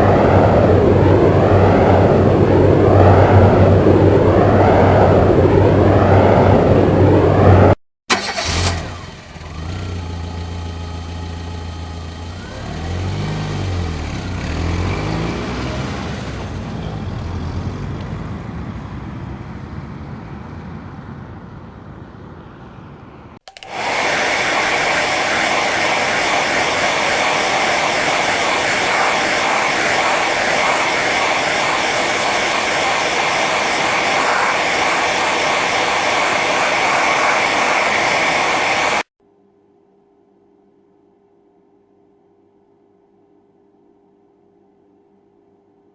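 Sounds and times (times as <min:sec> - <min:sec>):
motor rushing with high whine: 0:00.0 - 0:07.8, 0:08.5 - 0:17.0, 0:23.6 - 0:39.1
motor running with varying pitch: 0:08.5 - 0:16.6, 0:23.5 - 0:39.1.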